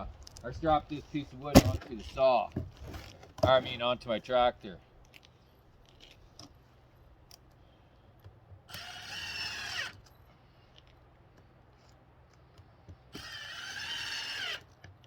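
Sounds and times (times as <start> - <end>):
power drill driving screws: 8.7 - 10.1, 13.1 - 14.8.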